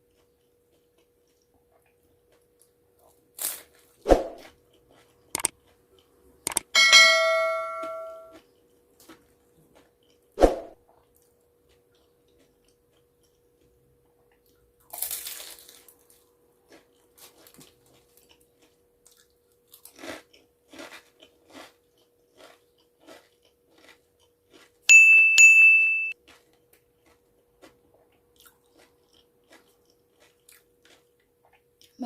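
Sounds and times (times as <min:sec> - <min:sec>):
crunching and chewing: 0:00.0 - 0:06.7, 0:08.3 - 0:24.9, 0:26.1 - 0:32.0
bright ding: 0:06.8 - 0:08.3, 0:24.9 - 0:26.2.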